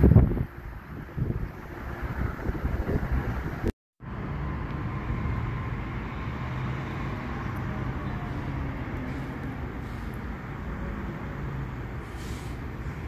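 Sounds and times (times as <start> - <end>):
wind on microphone: 0.0 - 3.7.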